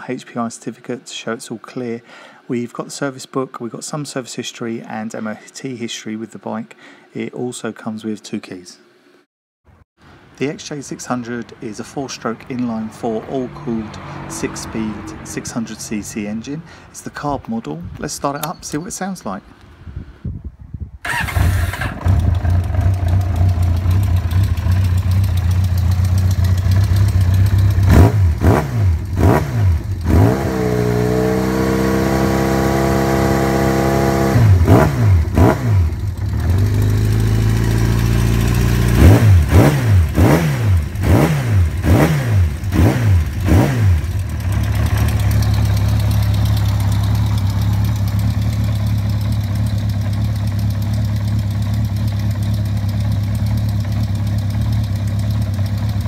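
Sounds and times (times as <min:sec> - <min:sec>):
motorcycle engine idling and revving: 0:12.6 - 0:16.6, 0:21.0 - 0:56.0.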